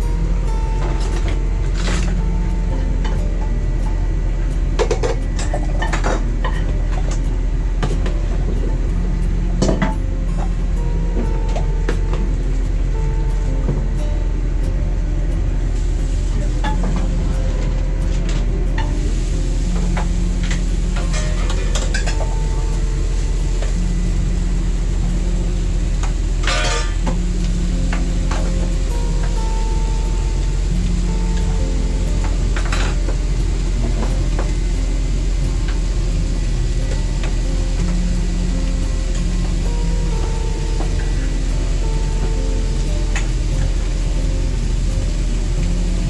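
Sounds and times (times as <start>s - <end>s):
steady low hum: 0.0s - 46.0s
steady low rumble: 0.0s - 46.0s
pots and utensils clattering: 26.2s - 35.2s.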